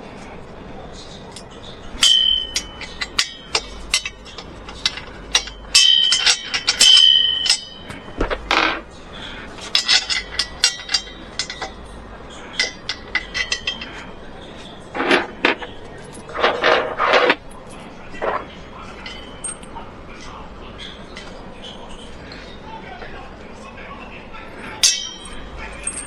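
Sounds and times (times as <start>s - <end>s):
hand tools knocking and clinking: 1.3s - 8.8s, 9.6s - 21.4s, 24.6s - 26.0s.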